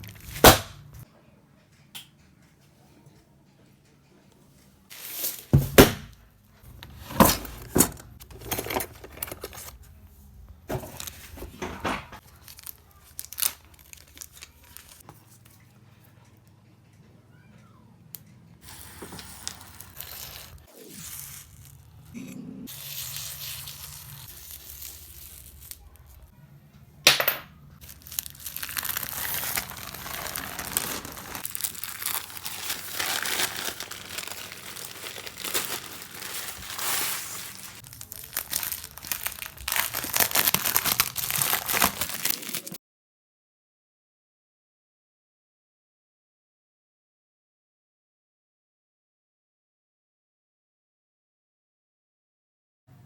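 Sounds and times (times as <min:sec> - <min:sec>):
packaging crinkling and tearing: 0:00.0 - 0:00.8, 0:06.7 - 0:09.8, 0:12.2 - 0:15.0, 0:18.7 - 0:21.9, 0:22.7 - 0:26.3, 0:27.8 - 0:42.8.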